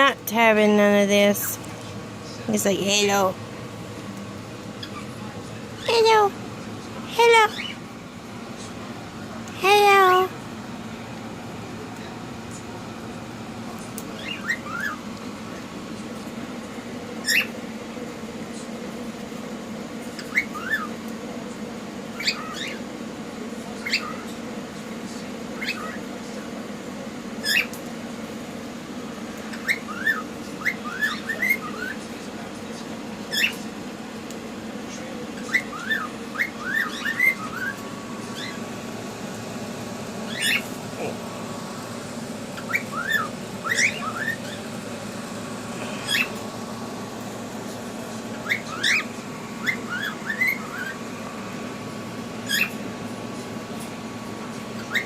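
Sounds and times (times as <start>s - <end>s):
steady low hum: 0.0s - 55.0s
cockatiels chirping and whistling: 7.4s - 7.8s, 14.2s - 15.0s, 17.2s - 17.5s, 20.2s - 20.9s, 22.2s - 22.8s, 23.8s - 24.2s, 25.6s - 26.0s, 27.4s - 27.7s, 29.5s - 32.0s, 33.3s - 33.6s, 35.4s - 38.6s, 40.3s - 40.7s, 42.6s - 44.6s, 46.0s - 46.4s, 48.4s - 51.0s, 52.4s - 52.8s, 54.8s - 55.0s.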